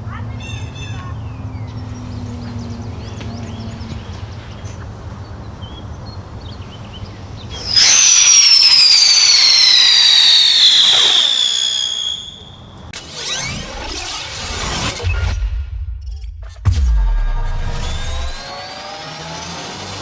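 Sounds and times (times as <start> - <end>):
whistling firework: 7.5 - 15.3
sharp crack: 7.6 - 12.4.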